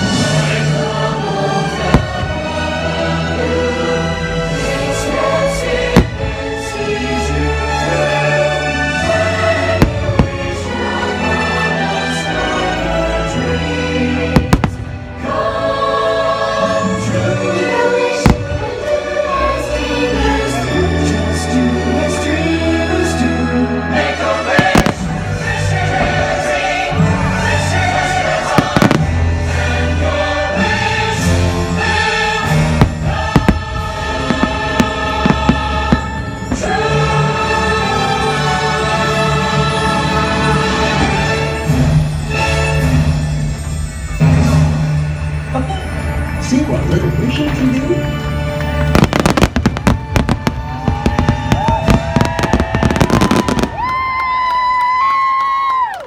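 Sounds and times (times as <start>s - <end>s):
loud soundtrack music: 0.0s - 54.2s
firework bangs: 1.8s - 2.9s, 5.9s - 6.7s, 9.7s - 11.0s, 14.4s - 15.1s, 18.2s - 19.0s, 24.5s - 26.9s, 28.3s - 29.6s, 32.4s - 37.0s, 48.6s - 54.2s.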